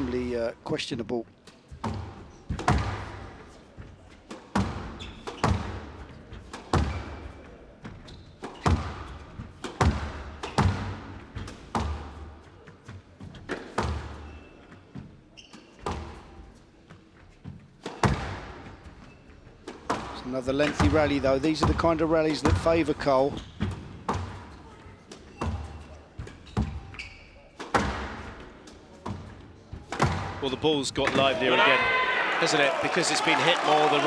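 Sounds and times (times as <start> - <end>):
squash ball echoing cracks: 1.8 - 3.4, 4.2 - 7.4, 8.4 - 12.4, 19.6 - 23.0, 27.6 - 28.4, 29.9 - 31.4.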